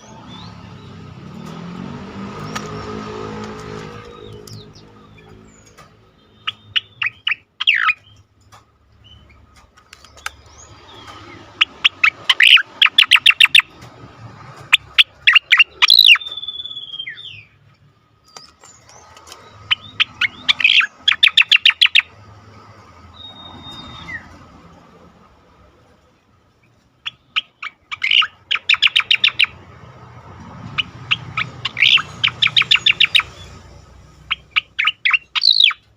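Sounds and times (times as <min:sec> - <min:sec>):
bird song rapid sharp notes: 0:00.0 - 0:25.1, 0:25.7 - 0:35.9
falling bird whistle: 0:15.0 - 0:17.6, 0:23.1 - 0:24.4, 0:34.3 - 0:35.9.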